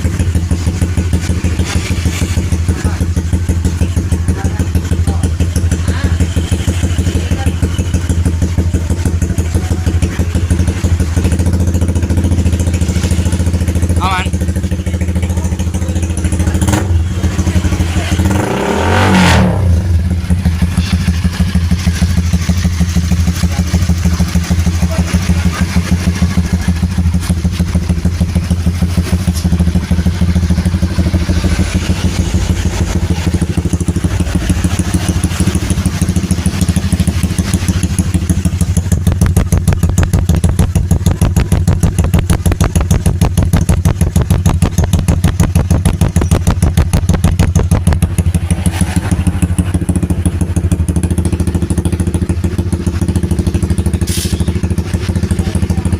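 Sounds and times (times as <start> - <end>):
engine revving: 0.0 - 55.9
motorcycle engine idling: 0.0 - 55.9.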